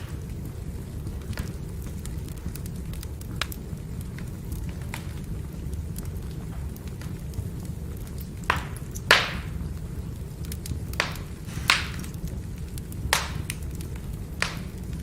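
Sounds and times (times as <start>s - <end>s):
fire crackling: 0.0s - 15.0s
fire flames rumbling: 0.0s - 15.0s
logs popping sharply: 11.0s - 12.0s.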